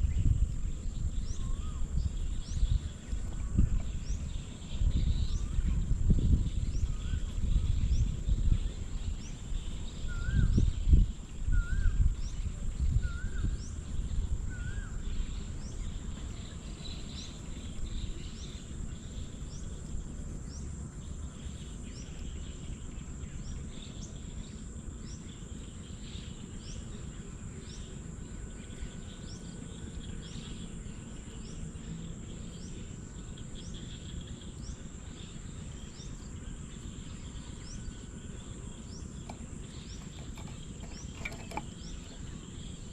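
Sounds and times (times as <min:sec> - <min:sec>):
high insect drone: 0:00.0 - 0:42.9
whistled bird notes: 0:04.0 - 0:13.8.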